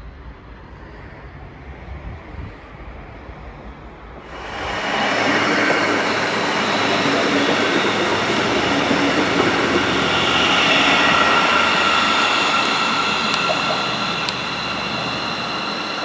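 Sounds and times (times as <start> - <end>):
train rolling noise: 4.1 - 16.0
high whining train tones: 4.2 - 16.0.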